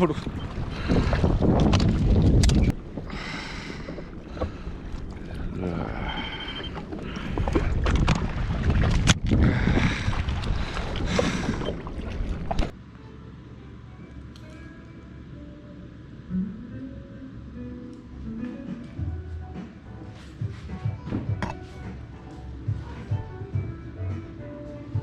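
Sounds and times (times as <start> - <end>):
wind buffeting microphone: 0.0 - 6.0, 6.6 - 12.8
sea water washing: 0.0 - 12.8.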